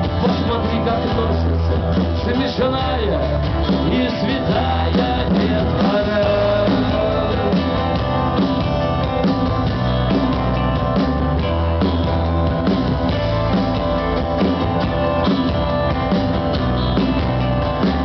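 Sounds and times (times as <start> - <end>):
bass guitar: 0.0 - 18.0
drum kit beat: 0.0 - 18.0
electric guitars: 0.0 - 18.0.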